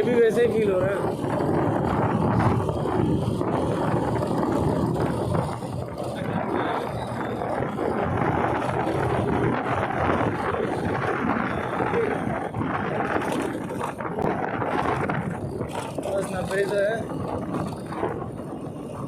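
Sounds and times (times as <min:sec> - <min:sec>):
motorcycle road noise: 0:00.0 - 0:19.0
wind rushing over microphone: 0:00.0 - 0:19.0.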